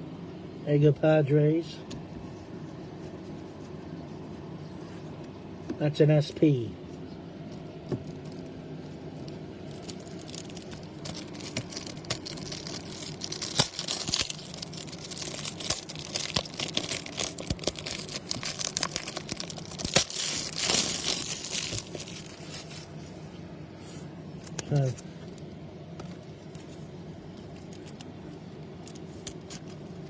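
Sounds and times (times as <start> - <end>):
cards rustling: 7.5 - 23.2, 26.0 - 29.8
plastic wrapper crinkling and tearing: 9.2 - 23.1, 26.4 - 29.8.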